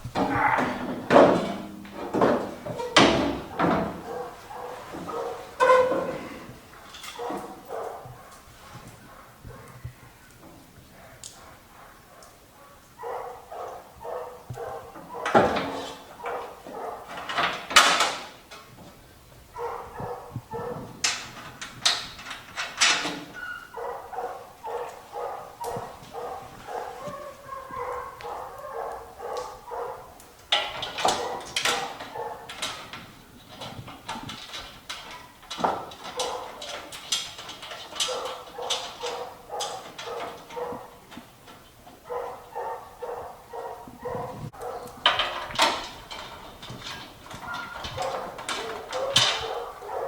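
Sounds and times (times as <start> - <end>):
knocks and clanks on metal: 0.0 - 8.3, 14.5 - 19.0, 19.6 - 24.0, 29.8 - 50.0.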